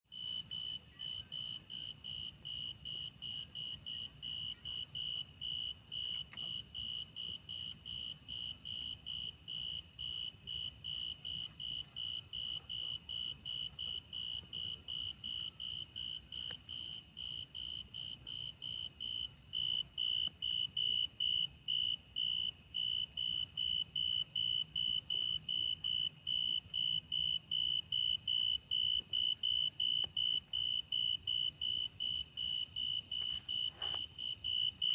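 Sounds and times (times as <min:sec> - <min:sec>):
insects chirping: 0:00.1 - 0:34.9.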